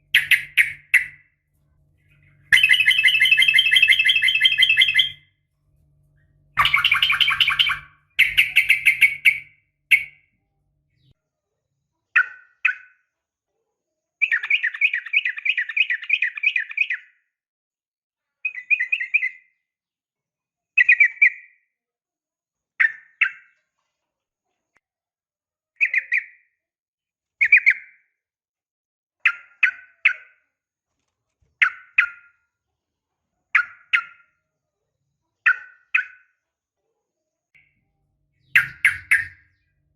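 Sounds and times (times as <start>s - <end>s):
bird chattering calls: 0.0s - 1.2s, 2.5s - 5.2s, 6.6s - 10.1s, 38.4s - 39.4s.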